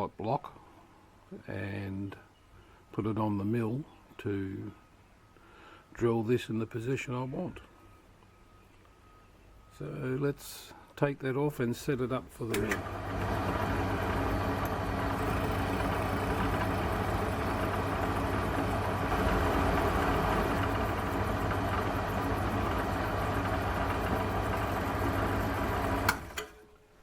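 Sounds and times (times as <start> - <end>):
machine tool motor humming: 12.5 - 26.6.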